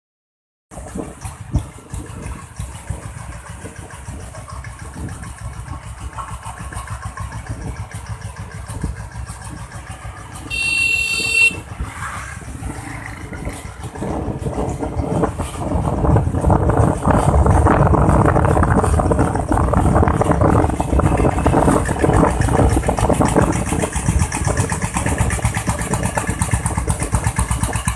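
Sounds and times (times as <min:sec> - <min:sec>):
diesel motorbike engine running: 0:00.7 - 0:27.9
horn sounding: 0:10.4 - 0:11.8.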